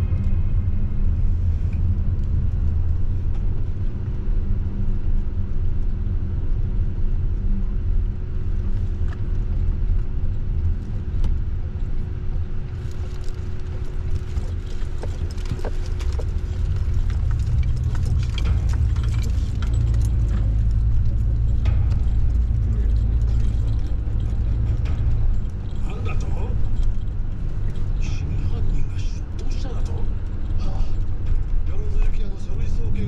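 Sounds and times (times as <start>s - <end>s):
engine and road rumble: 0.0s - 33.0s
light clicks and rattles: 12.7s - 33.0s.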